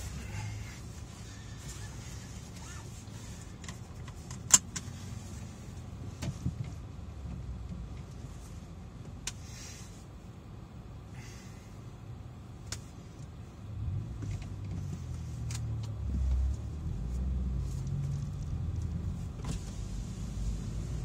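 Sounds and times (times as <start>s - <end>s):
car engine accelerating: 13.8s - 21.0s.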